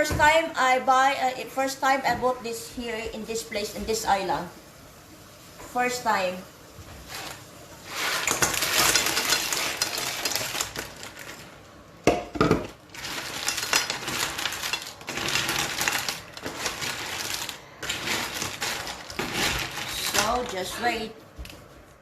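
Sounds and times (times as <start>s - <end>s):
utensils rattling and scraping in pan: 7.0s - 11.5s, 12.7s - 21.1s.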